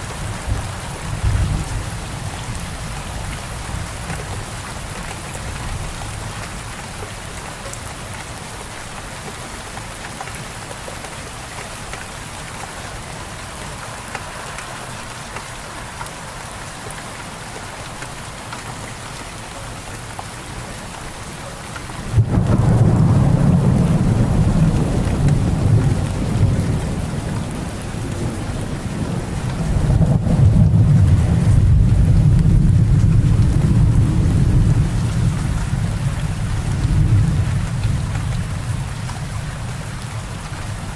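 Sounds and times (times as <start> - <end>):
steady rain falling: 0.0 - 40.9
thunder rumbling: 22.1 - 39.4.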